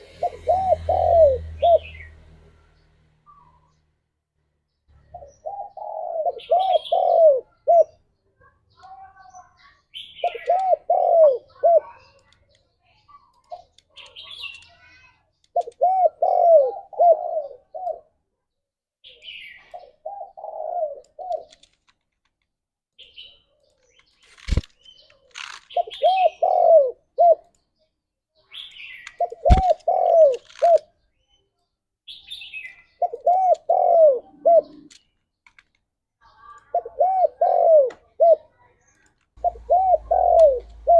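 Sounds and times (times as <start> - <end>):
doves cooing: 0.0 - 2.1, 5.1 - 8.0, 10.2 - 11.9, 15.5 - 18.1, 19.8 - 21.7, 25.4 - 27.4, 29.2 - 30.9, 33.0 - 35.0, 36.7 - 38.5, 39.4 - 40.9
small birds chirping: 0.0 - 22.2, 22.9 - 40.9
sharp clicks: 12.0 - 12.7, 13.3 - 14.8, 21.3 - 25.8, 28.7 - 30.9, 39.0 - 40.9.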